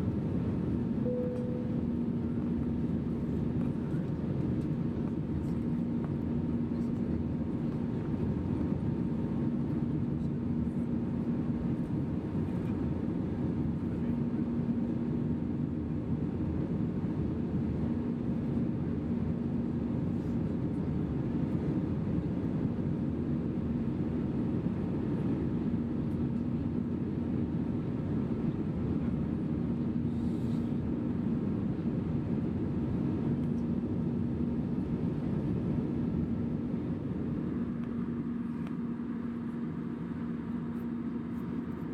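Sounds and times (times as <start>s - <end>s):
low cabin hum: 0.0s - 20.7s, 23.8s - 41.9s
jet engine and airflow roar: 0.0s - 41.9s.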